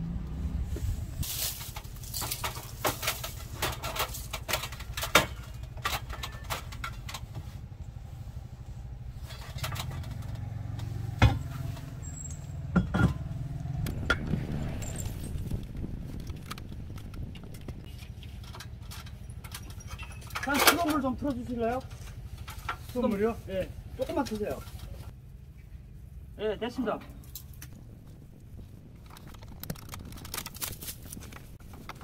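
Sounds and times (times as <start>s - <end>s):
low motor hum: 4.2s - 20.4s.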